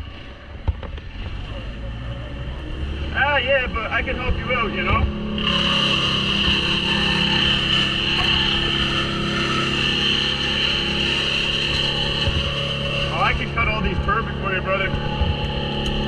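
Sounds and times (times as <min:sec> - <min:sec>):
chainsaw cutting wood: 0:05.0 - 0:14.2.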